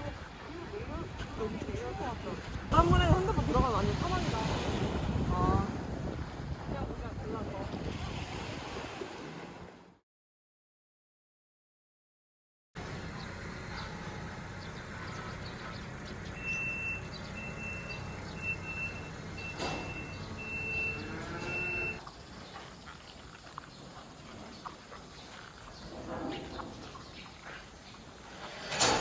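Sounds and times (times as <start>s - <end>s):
vehicle engine humming: 12.8s - 22.1s
outdoor ambience: 12.8s - 29.0s
high electronic beeps: 16.4s - 22.0s.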